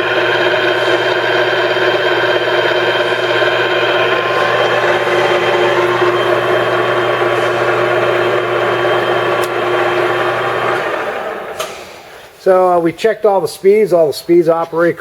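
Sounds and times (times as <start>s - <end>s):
lathe gear whine: 0.0s - 11.9s.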